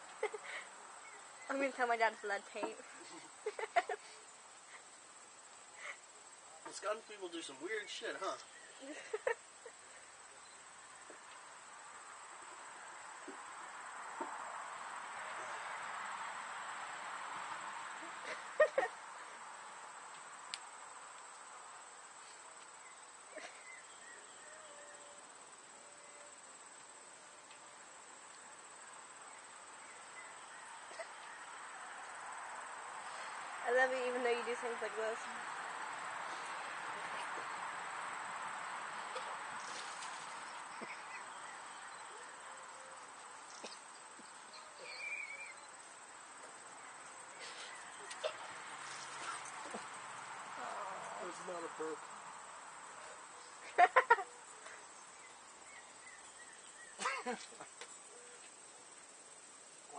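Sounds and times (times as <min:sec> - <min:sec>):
crickets chirring: 0:00.0 - 0:59.9
faint steady hiss: 0:00.0 - 0:59.9
warbling bird chirp: 0:44.5 - 0:45.7.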